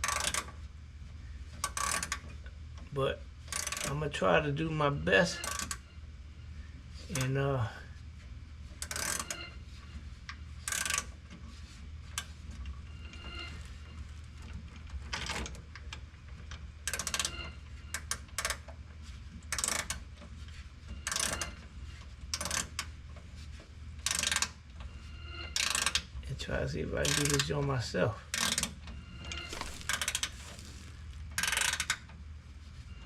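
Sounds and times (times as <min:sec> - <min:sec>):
ratchet wrench cranking: 0:03.5 - 0:04.0, 0:05.4 - 0:05.8, 0:24.0 - 0:24.5, 0:25.6 - 0:26.0, 0:27.1 - 0:27.5, 0:29.5 - 0:32.0
low steady hum: 0:27.9 - 0:33.0.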